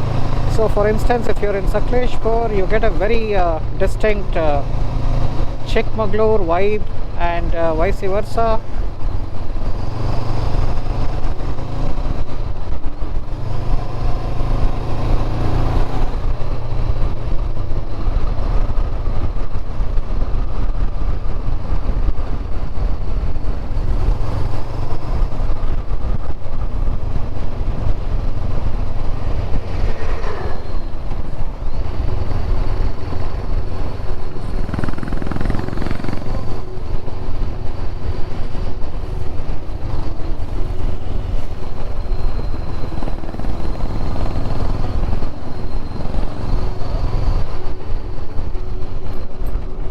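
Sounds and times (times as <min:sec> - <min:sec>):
motorcycle engine running: 0:00.0 - 0:49.9
rushing noise: 0:11.2 - 0:49.9.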